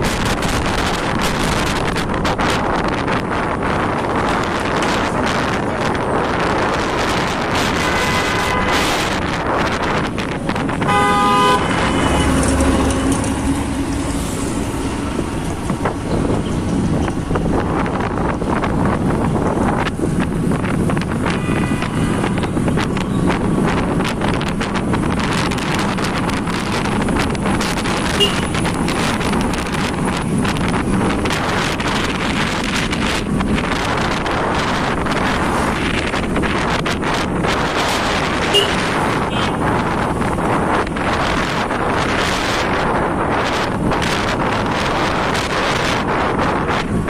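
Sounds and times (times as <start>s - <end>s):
wind and road noise on motorbike: 0.0s - 47.0s
horn toot: 7.5s - 9.4s, 10.7s - 13.8s, 21.2s - 22.4s, 38.4s - 39.6s.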